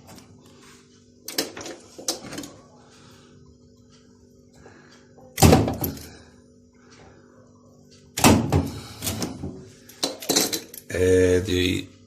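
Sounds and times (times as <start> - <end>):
loud knock with rattle: 5.4 - 6.0, 8.2 - 9.6.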